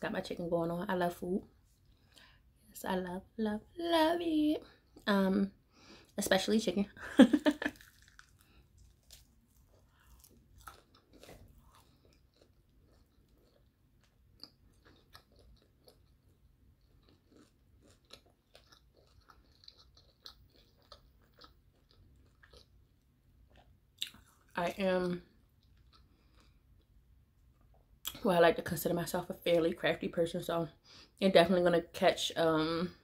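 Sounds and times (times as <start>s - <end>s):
crunchy bite crackle: 7.6s - 16.1s
close-up chewing with crunches: 7.6s - 24.6s, 25.5s - 27.0s.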